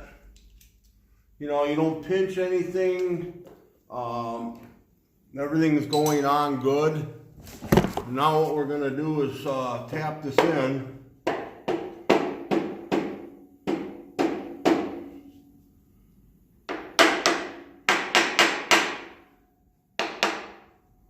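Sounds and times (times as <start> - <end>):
hammer strikes on metal: 11.2 - 15.2, 16.7 - 19.2, 20.0 - 20.7.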